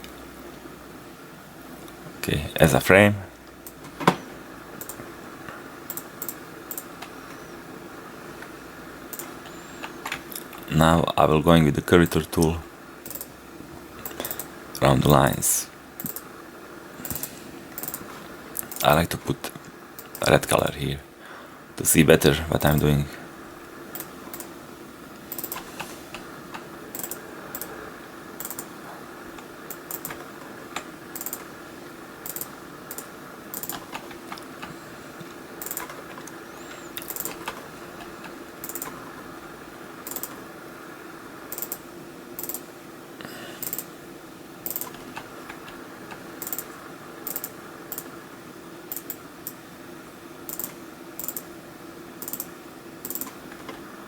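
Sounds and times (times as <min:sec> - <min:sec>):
steady low hum: 0:00.0 - 0:54.0
computer mouse clicks: 0:04.8 - 0:05.1, 0:05.9 - 0:07.4, 0:09.1 - 0:10.7, 0:13.0 - 0:13.3, 0:14.0 - 0:14.5, 0:16.0 - 0:16.3, 0:17.0 - 0:18.8, 0:20.0 - 0:20.2, 0:23.9 - 0:24.5, 0:25.2 - 0:27.7, 0:28.4 - 0:28.7, 0:29.4 - 0:31.5, 0:32.2 - 0:39.0, 0:40.0 - 0:40.4, 0:41.5 - 0:41.8, 0:42.4 - 0:42.7, 0:43.6 - 0:43.9, 0:44.6 - 0:48.1, 0:48.9 - 0:49.6, 0:50.5 - 0:51.5, 0:52.2 - 0:53.8.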